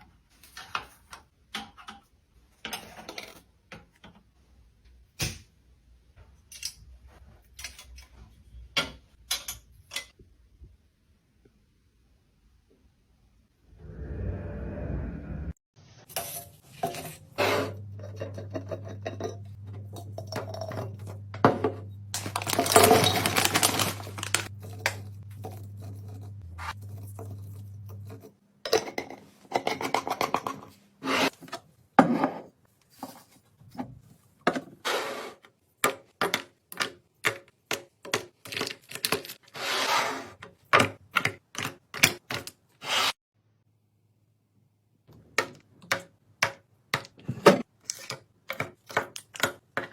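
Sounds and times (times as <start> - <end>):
plastic containers clicking and knocking: 18.3 - 25.2, 35.8 - 39.4, 40.4 - 42.7, 45.1 - 49.9.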